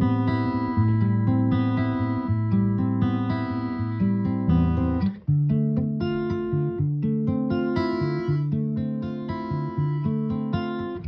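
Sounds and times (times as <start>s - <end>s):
guitar playing chords: 0.0s - 11.0s.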